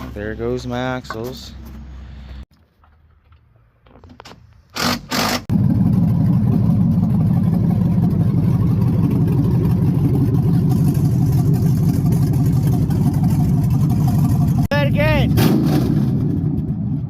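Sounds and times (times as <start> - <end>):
short bursts of noise: 4.7 - 5.5
pickup truck engine starting: 5.3 - 14.7.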